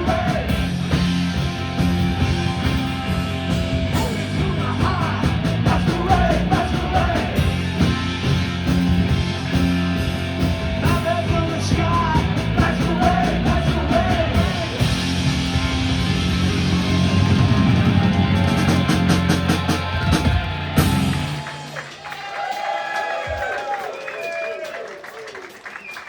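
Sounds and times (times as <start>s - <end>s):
punk rock band playing: 0.0s - 21.8s.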